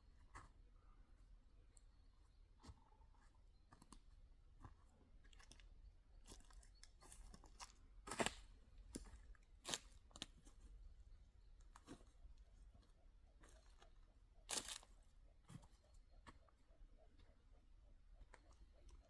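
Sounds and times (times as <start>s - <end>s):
faint crunches and clicks: 3.7s - 10.6s, 11.6s - 16.6s, 18.2s - 19.0s.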